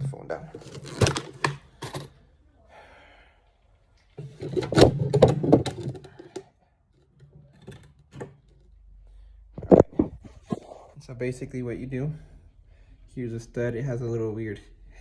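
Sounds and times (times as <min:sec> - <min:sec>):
case handling clicks and knocks: 0:00.0 - 0:02.2, 0:04.4 - 0:06.4.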